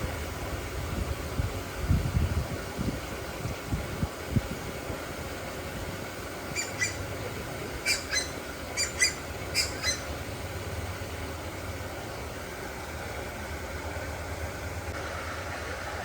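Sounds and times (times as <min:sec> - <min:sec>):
steady low hum: 0:00.0 - 0:16.0
birds squawking: 0:06.5 - 0:07.1, 0:07.8 - 0:10.2.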